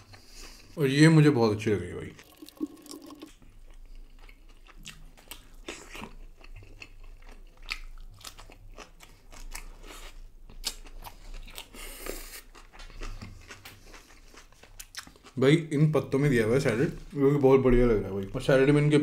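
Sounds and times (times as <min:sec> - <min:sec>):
person chewing crunchy food: 0:02.2 - 0:15.4.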